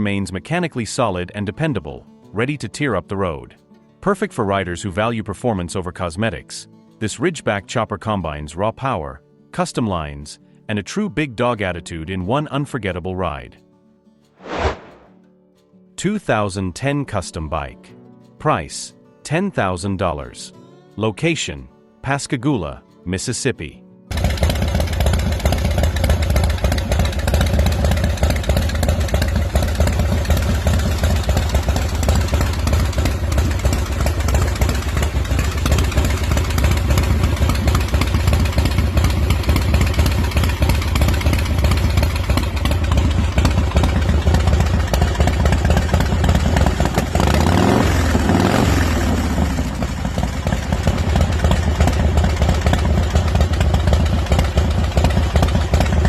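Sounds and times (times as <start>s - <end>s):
motorcycle engine idling: 24.1s - 56.0s.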